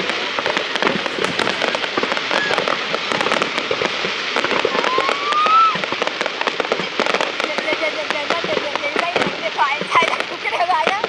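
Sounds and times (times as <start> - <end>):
firework rising whistle: 0.0 - 6.5
fireworks crackling: 0.0 - 11.0.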